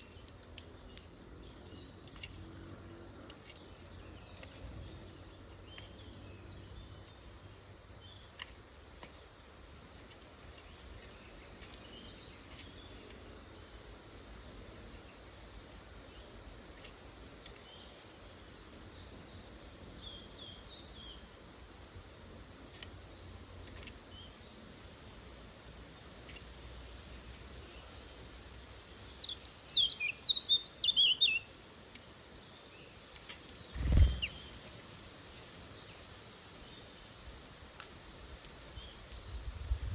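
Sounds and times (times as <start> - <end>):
songbirds chirping: 0.0 - 39.9
bird rapid high chirps: 33.8 - 34.6.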